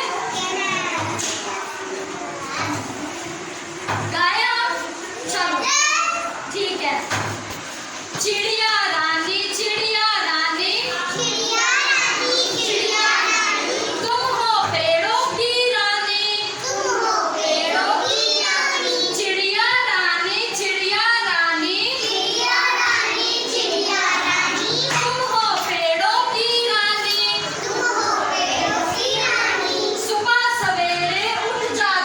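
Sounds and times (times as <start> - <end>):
children singing a rhyme: 9.2 - 31.9.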